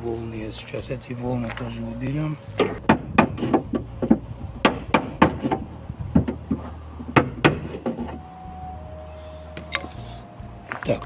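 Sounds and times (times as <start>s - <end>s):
hammer striking steel panel: 2.6s - 8.1s.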